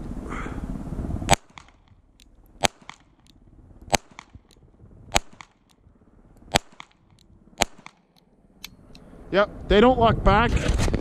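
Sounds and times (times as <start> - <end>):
pistol shots: 1.3 - 2.0, 2.6 - 3.3, 3.9 - 5.8, 6.5 - 8.3.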